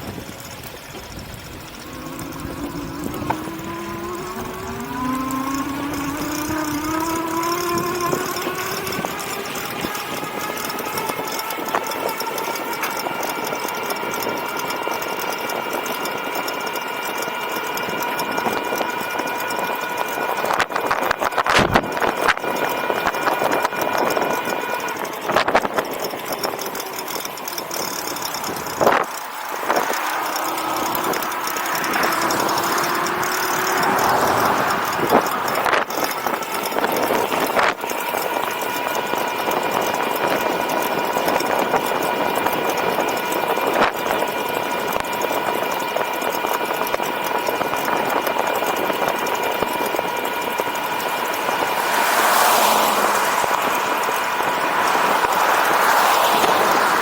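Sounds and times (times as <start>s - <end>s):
electric bike motor whining: 0.0s - 57.0s
wind noise: 20.2s - 24.7s.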